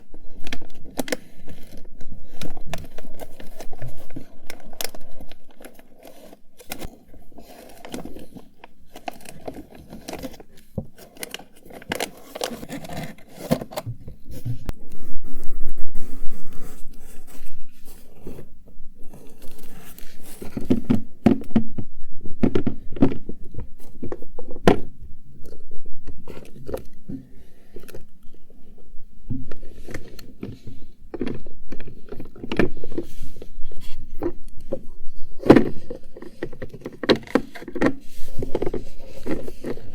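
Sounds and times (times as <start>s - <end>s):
rummaging through small containers: 0.0s - 14.7s, 16.8s - 39.9s.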